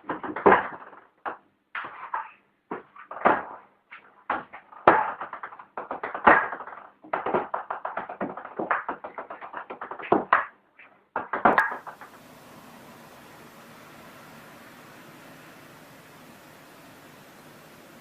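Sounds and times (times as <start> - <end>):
rapid knocks and taps: 0.0 - 12.3.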